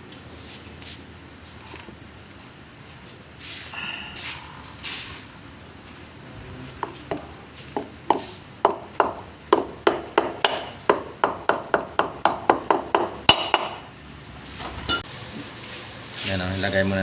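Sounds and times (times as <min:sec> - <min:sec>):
hammer striking metal: 0:08.6 - 0:13.9.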